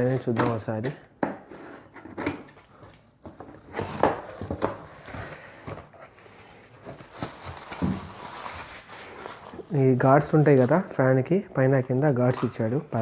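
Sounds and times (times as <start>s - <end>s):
packaging rustling: 3.6s - 10.8s.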